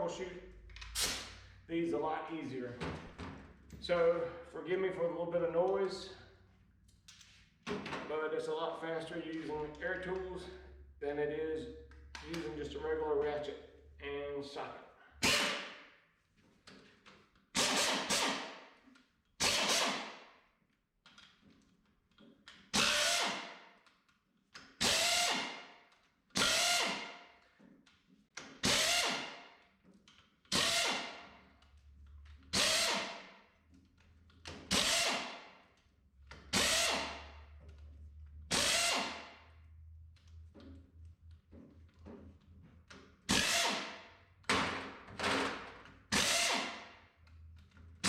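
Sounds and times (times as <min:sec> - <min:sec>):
pneumatic air tool bursts: 0:15.2 - 0:15.8, 0:17.5 - 0:18.6, 0:19.4 - 0:20.2, 0:22.7 - 0:23.6, 0:24.8 - 0:25.8, 0:26.4 - 0:27.2, 0:28.6 - 0:29.4, 0:30.5 - 0:31.2, 0:32.5 - 0:33.3, 0:34.6 - 0:35.4, 0:36.5 - 0:37.2, 0:38.5 - 0:39.3, 0:43.3 - 0:44.0, 0:46.1 - 0:46.9.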